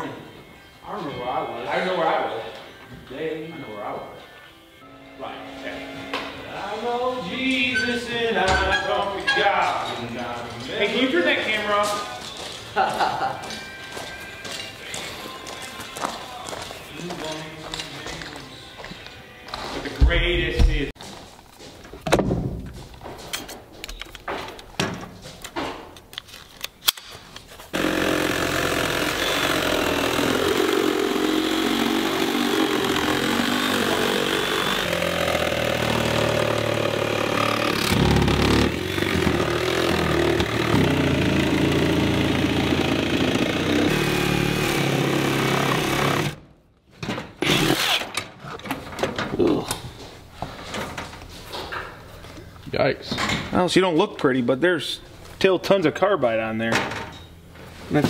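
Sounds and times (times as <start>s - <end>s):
power saw cutting: 27.7s - 46.4s.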